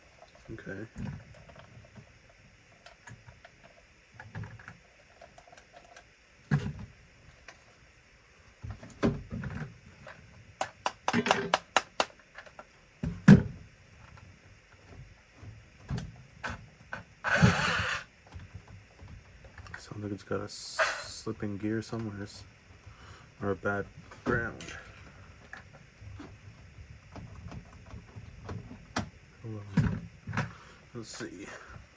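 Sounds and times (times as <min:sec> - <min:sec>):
gearbox clicking and knocking: 0:10.6 - 0:12.1
toy car motor whirring in spurts: 0:17.3 - 0:18.0.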